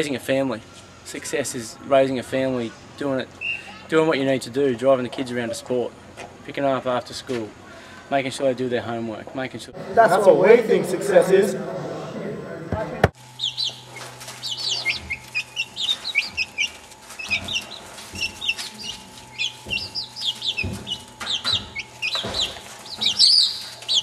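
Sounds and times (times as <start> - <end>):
steady low hum: 9.6 - 24.0
birds chirping: 13.2 - 24.0.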